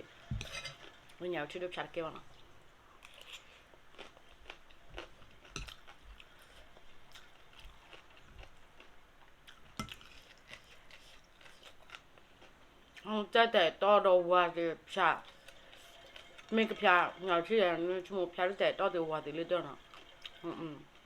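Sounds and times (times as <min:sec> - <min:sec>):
person chewing and eating: 0:02.2 - 0:13.1, 0:15.2 - 0:17.1, 0:19.7 - 0:21.0.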